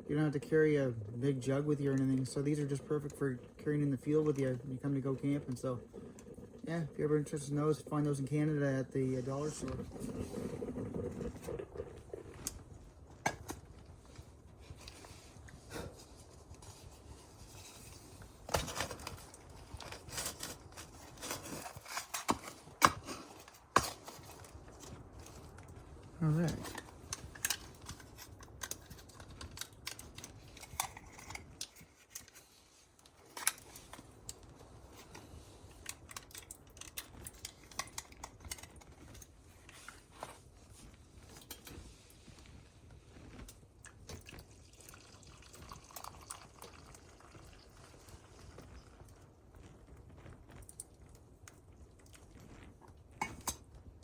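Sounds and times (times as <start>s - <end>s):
coffee pouring into a mug: 43.8s - 49.5s.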